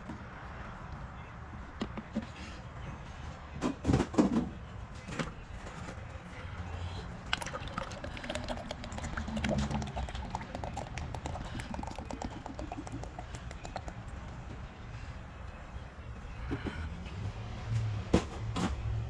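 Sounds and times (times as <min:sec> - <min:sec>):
oil pouring into a funnel: 0:07.3 - 0:14.3.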